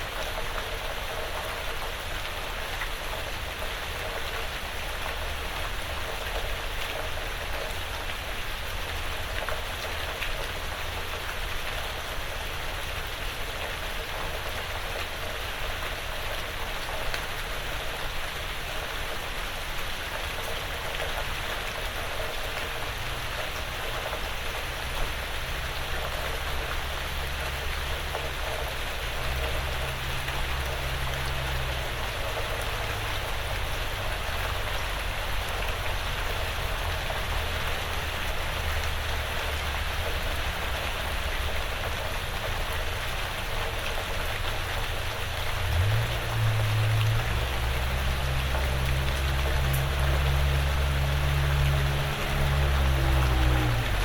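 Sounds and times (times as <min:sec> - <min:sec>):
light rain pattering on roof: 0:00.0 - 0:54.0.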